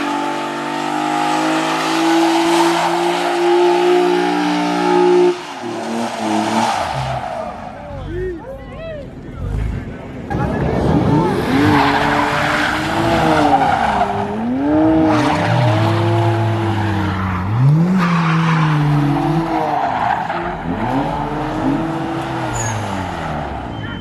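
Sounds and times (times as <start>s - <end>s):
car engine revving hard: 0.0s - 7.6s, 9.6s - 23.7s
tyres squealing on pavement: 2.5s - 8.5s, 11.6s - 14.5s, 15.1s - 21.2s, 22.3s - 24.0s.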